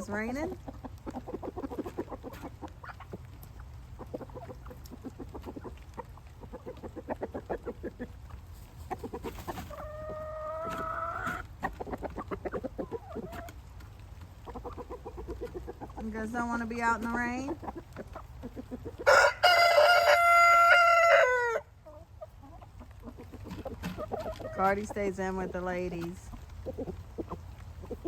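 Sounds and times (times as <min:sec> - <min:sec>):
roosters clucking: 0:00.0 - 0:28.0
rooster crowing: 0:19.1 - 0:21.7.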